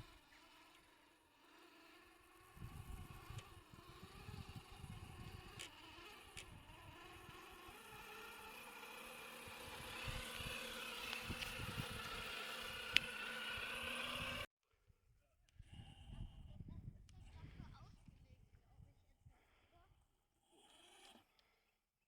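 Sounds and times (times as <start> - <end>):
electric motor and gear whine: 0.0 - 14.5.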